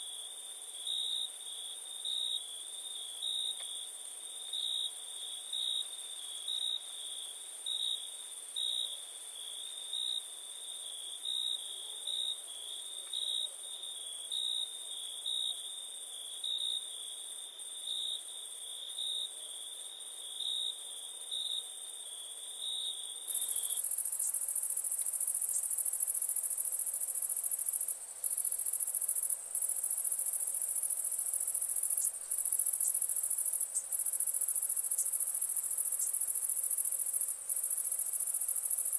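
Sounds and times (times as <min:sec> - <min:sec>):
cricket chirping: 0:00.0 - 0:38.9
insect trill: 0:16.4 - 0:38.9.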